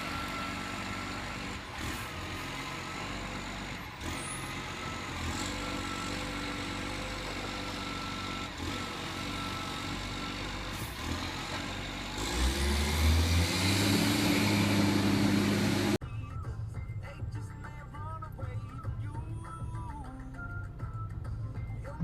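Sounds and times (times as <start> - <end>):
truck diesel engine revving: 0.0 - 16.0.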